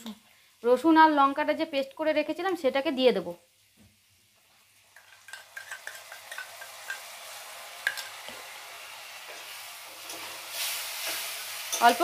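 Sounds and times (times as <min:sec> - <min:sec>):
paste sizzling in hot oil: 0:03.4 - 0:12.0
metal spoon scraping a pan: 0:04.9 - 0:07.1, 0:09.2 - 0:12.0.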